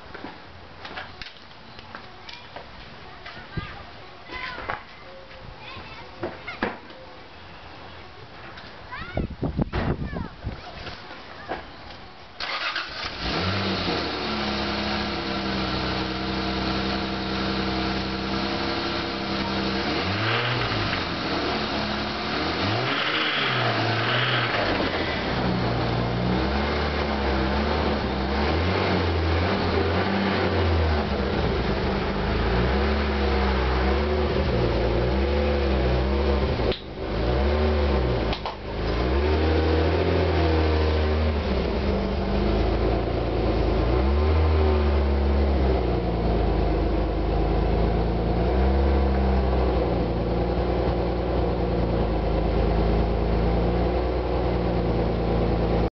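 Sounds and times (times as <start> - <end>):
car engine revving: 12.4 - 55.9.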